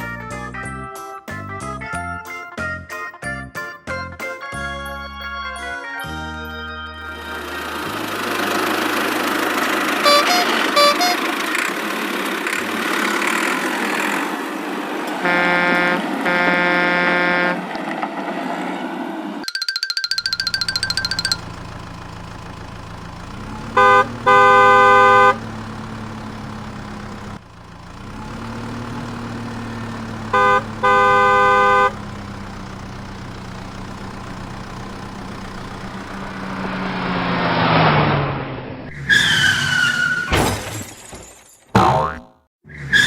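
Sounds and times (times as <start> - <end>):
cartoon engine hum: 7.0 - 11.9, 19.4 - 38.8
car horn honking: 9.9 - 11.6, 15.2 - 17.7, 20.4 - 27.4, 28.0 - 36.9.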